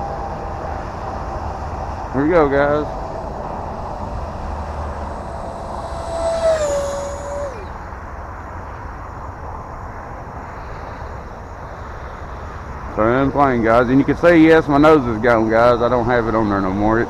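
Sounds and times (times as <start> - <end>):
jet fan high whine: 0.0 - 7.9.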